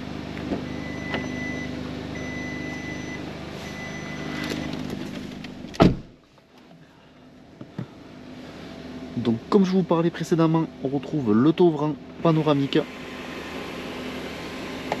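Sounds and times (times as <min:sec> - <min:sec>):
car engine idling: 0:00.0 - 0:15.0
high electronic beep: 0:00.7 - 0:04.3
car door slamming: 0:04.4 - 0:06.2.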